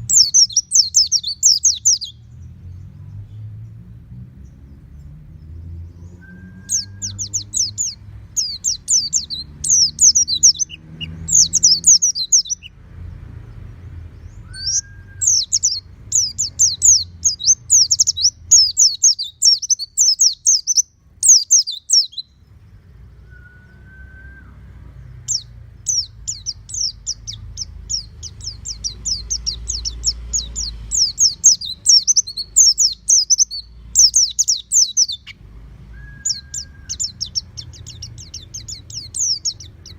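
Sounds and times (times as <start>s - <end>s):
bird twittering song: 0.0s - 39.9s
short low whistle: 23.3s - 24.6s, 35.9s - 37.0s.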